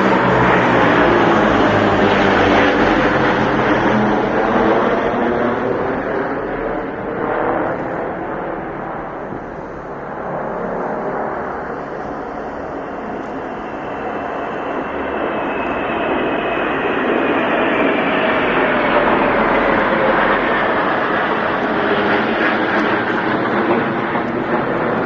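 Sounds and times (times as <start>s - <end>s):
whining tones sliding down: 0.0s - 18.9s
aircraft engine overhead: 0.0s - 25.0s.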